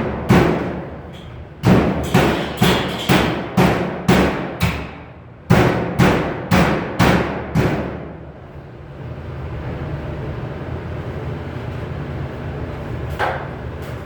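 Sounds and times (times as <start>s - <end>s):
hammer on sheet metal: 0.0s - 1.0s, 1.6s - 8.3s
steady low hum: 0.0s - 14.0s.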